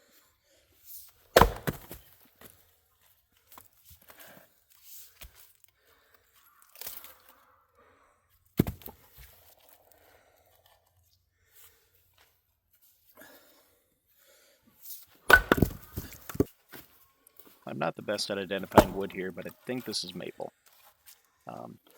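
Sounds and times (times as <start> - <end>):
wood splitting crackle: 1.3 - 2.2, 15.3 - 16.8, 18.6 - 19.2
axe striking firewood: 1.3 - 2.5, 8.6 - 9.0, 15.3 - 16.8, 18.7 - 19.2.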